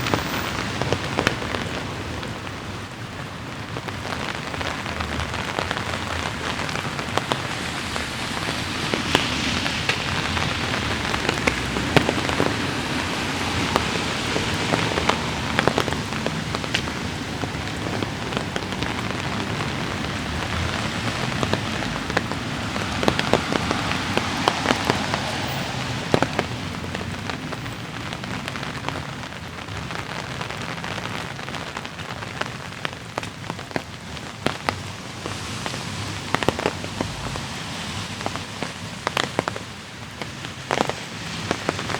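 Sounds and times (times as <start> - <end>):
light rain falling: 0.0 - 41.9.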